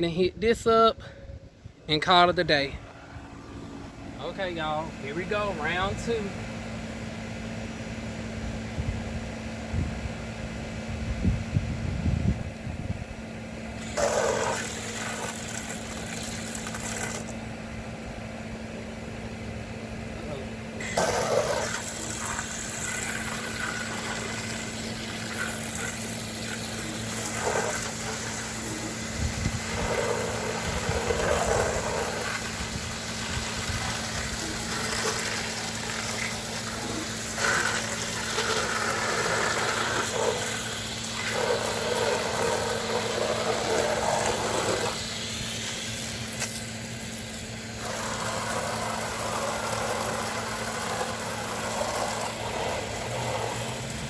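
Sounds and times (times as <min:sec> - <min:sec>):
pressure washer spraying: 0:13.8 - 0:17.4, 0:20.8 - 0:54.0.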